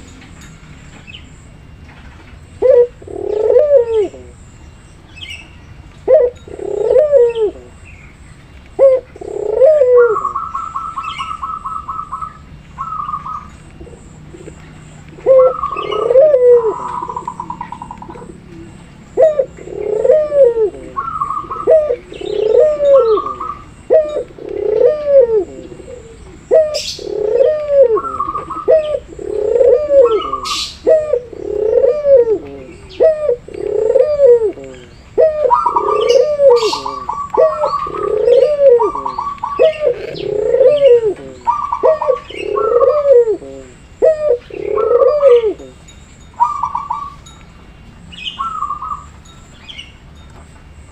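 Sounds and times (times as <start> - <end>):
doves cooing: 2.2 - 4.4, 6.0 - 7.9, 8.8 - 47.2
small bird chirping: 9.3 - 47.4.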